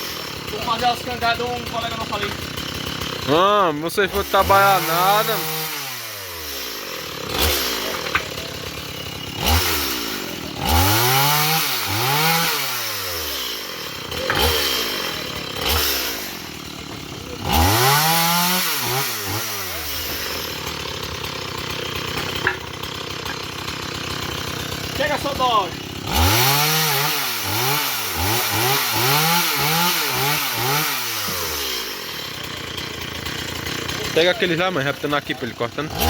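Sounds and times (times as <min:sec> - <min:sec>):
chainsaw revving and idling: 0:00.0 - 0:36.0.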